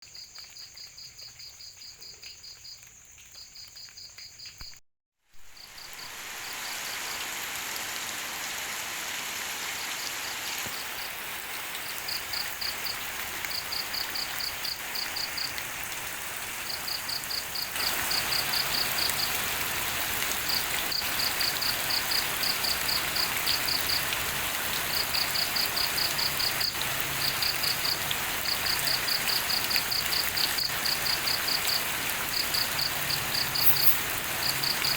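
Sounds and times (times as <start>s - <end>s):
steady rain falling: 0.0s - 34.9s
insects chirping: 5.4s - 7.4s, 16.6s - 19.4s, 24.9s - 34.9s.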